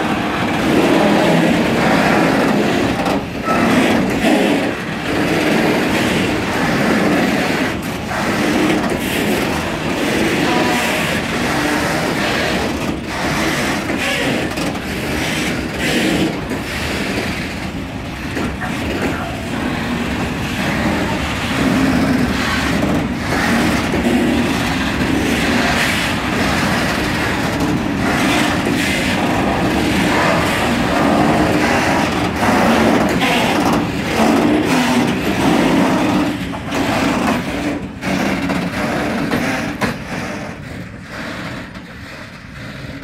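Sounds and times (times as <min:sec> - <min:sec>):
freight wheels clattering over rails: 0:00.0 - 0:43.0.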